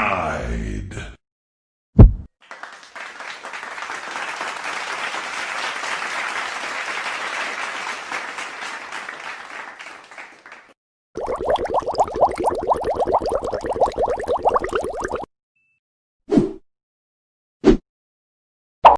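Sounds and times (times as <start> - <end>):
audience clapping: 2.4 - 12.4.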